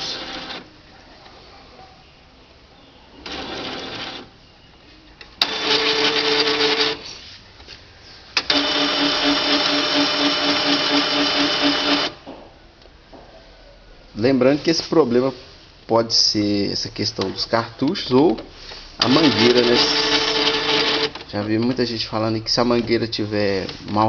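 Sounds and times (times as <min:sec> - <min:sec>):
inkjet printer mechanism whirring: 0:00.0 - 0:00.7, 0:03.2 - 0:04.3, 0:05.4 - 0:07.0, 0:08.4 - 0:12.2, 0:19.0 - 0:21.3.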